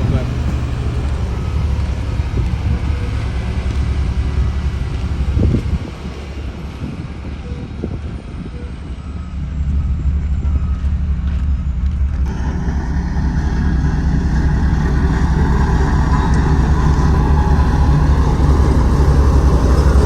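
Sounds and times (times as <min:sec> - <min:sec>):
road roller diesel engine: 0:00.0 - 0:20.0
rougher noisy engine layer: 0:00.0 - 0:20.0.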